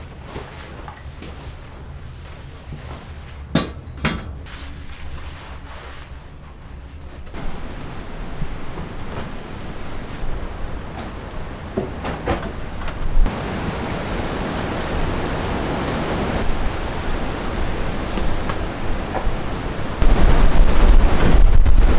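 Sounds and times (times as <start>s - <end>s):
storm wind and rain: 6.9s - 21.9s.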